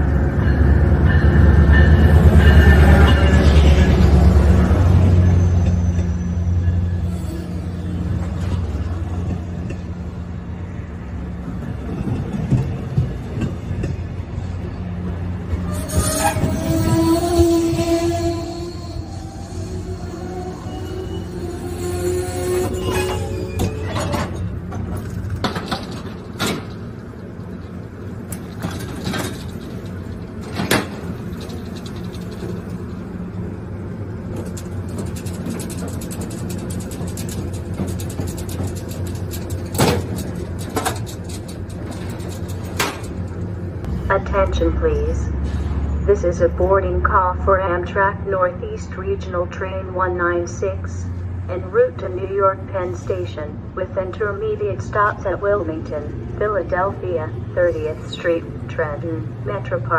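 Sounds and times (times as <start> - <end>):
train rolling past: 0.0 - 46.6
train wheel clicks: 16.4 - 33.4, 34.3 - 43.6
metallic knocks and clanks: 34.4 - 43.4.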